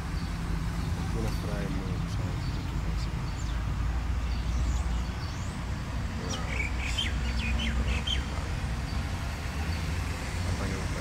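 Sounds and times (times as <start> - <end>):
small bird chirping: 2.0 - 10.0.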